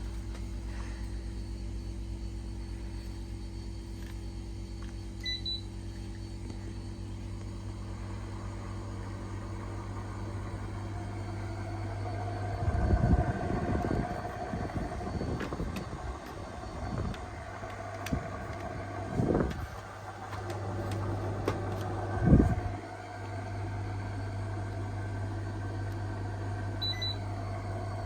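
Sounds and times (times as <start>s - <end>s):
air conditioner hum: 0.0s - 28.0s
gusty low rumble: 11.2s - 23.0s.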